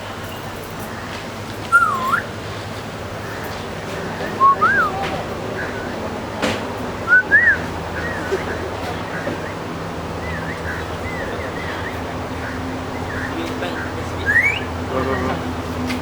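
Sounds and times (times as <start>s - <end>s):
parrot whistling: 1.7s - 2.4s, 4.2s - 6.0s, 7.1s - 14.8s.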